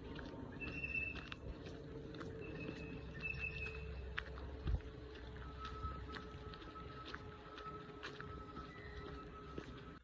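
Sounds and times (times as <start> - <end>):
bird whistled note: 2.5 - 3.9.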